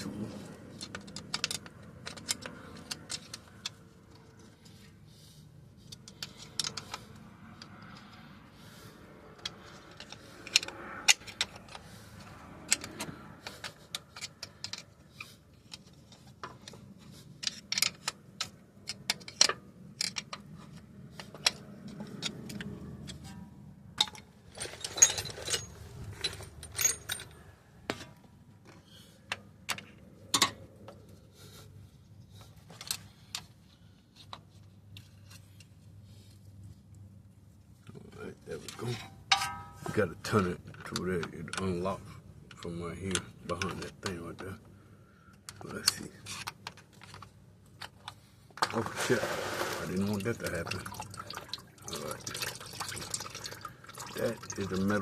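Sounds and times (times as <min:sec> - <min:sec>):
hand tools clinking on metal: 0:24.0 - 0:27.4, 0:38.7 - 0:40.0.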